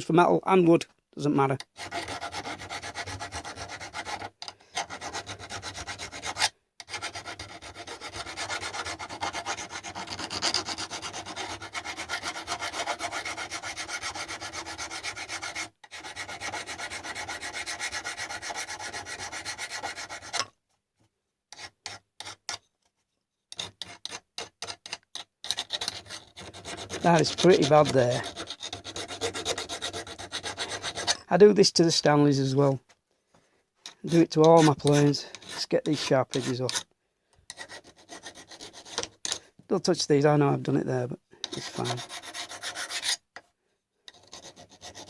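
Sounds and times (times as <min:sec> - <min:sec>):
hand file scraping metal: 0:01.6 - 0:20.5, 0:21.5 - 0:22.7, 0:23.5 - 0:31.3, 0:33.8 - 0:36.9, 0:37.5 - 0:39.5, 0:41.4 - 0:43.4, 0:44.1 - 0:45.0.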